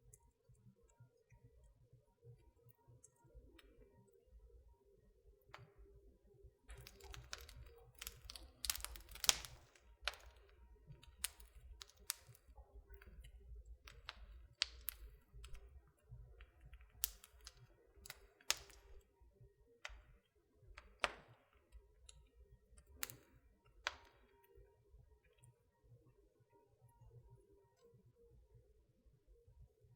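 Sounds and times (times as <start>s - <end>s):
wood fire crackling: 6.6s - 19.2s, 19.8s - 24.7s.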